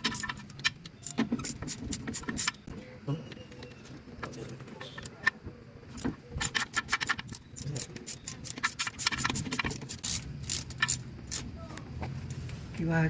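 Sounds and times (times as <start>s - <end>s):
ratchet wrench clicking: 0.0s - 2.6s, 6.4s - 11.6s.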